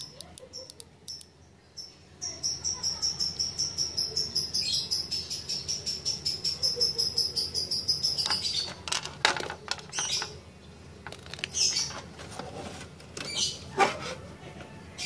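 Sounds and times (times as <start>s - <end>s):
birds chirping: 0.0s - 8.9s, 9.6s - 12.1s, 13.2s - 13.8s.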